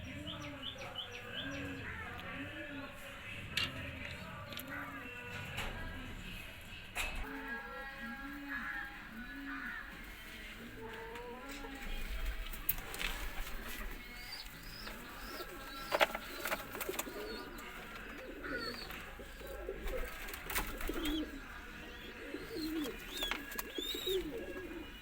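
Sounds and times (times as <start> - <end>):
pigeon chicks peeping: 7.0 - 25.0
pigeons cooing: 7.0 - 25.0.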